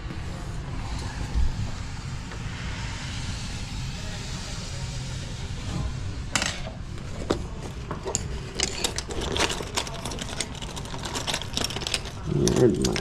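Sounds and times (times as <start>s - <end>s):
low steady rumble: 0.0s - 8.5s.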